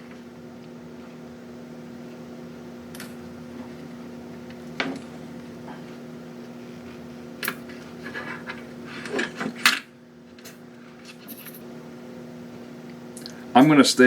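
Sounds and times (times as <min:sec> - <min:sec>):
steady low hum: 0:00.0 - 0:14.0
small parts clicking and scraping: 0:10.4 - 0:11.6.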